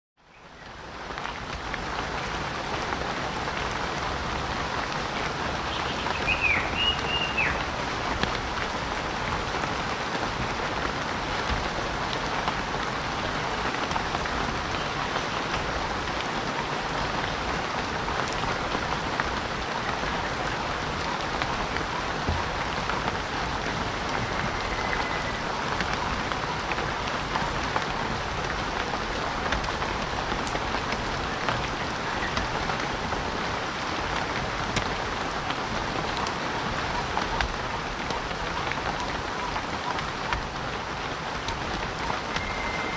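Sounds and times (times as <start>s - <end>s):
heavy rain falling: 0.2s - 42.9s
whistling call: 6.1s - 7.6s, 24.2s - 25.4s, 42.3s - 42.9s.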